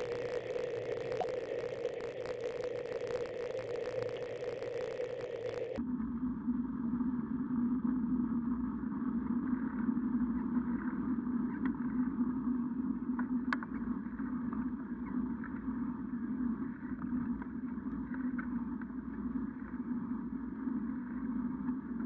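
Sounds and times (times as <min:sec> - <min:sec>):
bike riding drone: 0:00.0 - 0:05.8.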